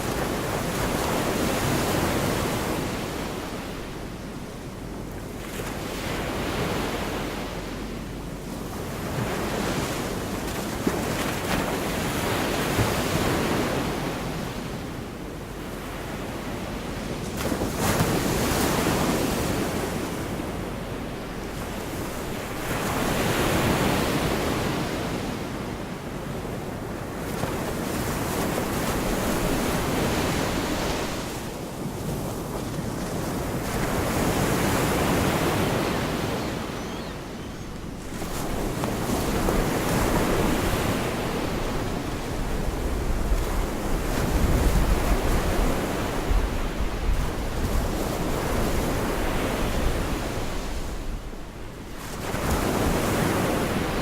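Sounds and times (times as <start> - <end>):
waves breaking on a beach: 0.0 - 54.0
wind rumbling on microphone: 26.2 - 54.0.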